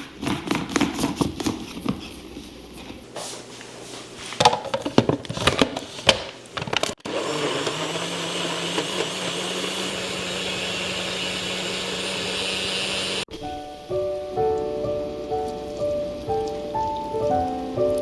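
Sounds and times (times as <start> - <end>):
blender motor whirring: 7.0 - 13.3.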